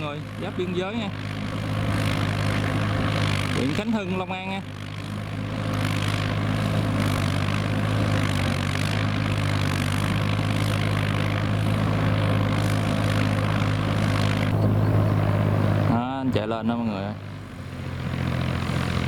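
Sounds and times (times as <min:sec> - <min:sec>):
rough machine working noise: 0:00.0 - 0:19.0
tractor diesel engine running: 0:00.0 - 0:19.0.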